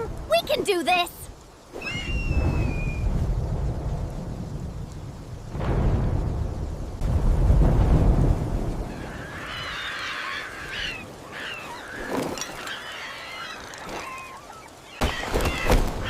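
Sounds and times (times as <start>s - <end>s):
birds twittering and squawking: 8.8s - 16.0s.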